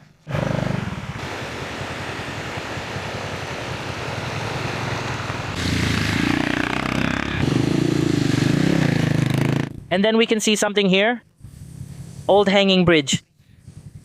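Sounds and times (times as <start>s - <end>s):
motorcycle engine running: 0.0s - 9.9s, 13.5s - 14.0s.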